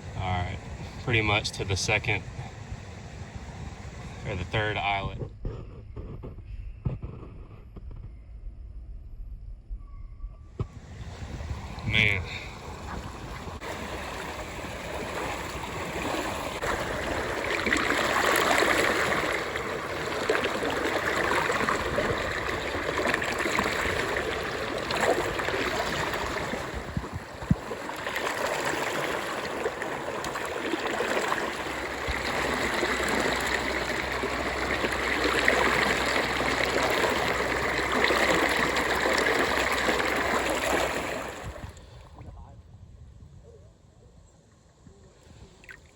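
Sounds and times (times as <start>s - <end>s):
river water over rocks: 10.8s - 41.8s.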